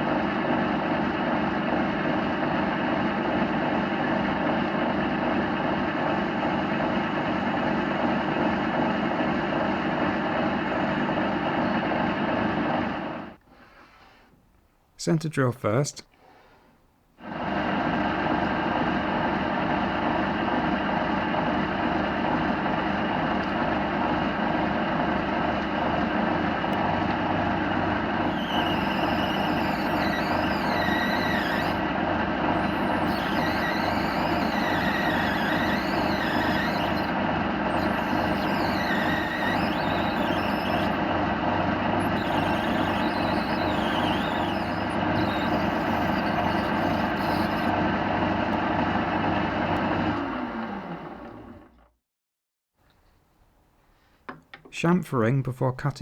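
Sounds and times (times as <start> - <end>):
metal lathe running: 26.0 - 48.7
faint wavering squeal: 28.0 - 47.7.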